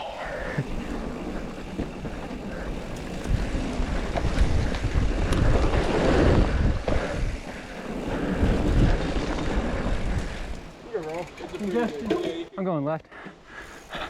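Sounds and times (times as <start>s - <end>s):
wind buffeting microphone: 0.0s - 10.8s.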